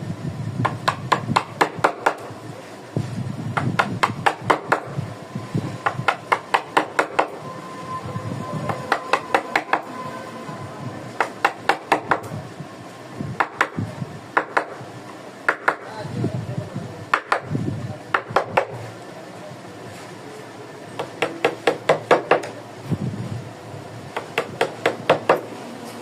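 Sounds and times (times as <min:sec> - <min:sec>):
mallet striking chisel: 0:00.6 - 0:02.3, 0:03.6 - 0:04.9, 0:05.8 - 0:07.3, 0:08.7 - 0:09.9, 0:11.2 - 0:12.3, 0:14.4 - 0:14.8, 0:15.5 - 0:15.9, 0:17.1 - 0:17.5, 0:18.1 - 0:18.8, 0:21.0 - 0:22.6, 0:24.2 - 0:25.5.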